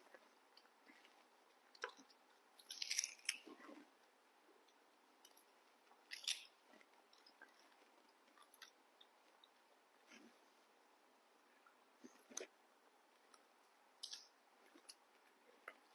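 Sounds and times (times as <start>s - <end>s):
crisp fruit crunching: 1.0s - 3.9s, 6.0s - 8.8s.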